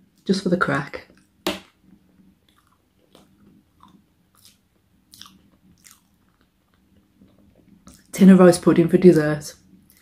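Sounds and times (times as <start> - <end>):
person chewing food: 2.1 - 8.1.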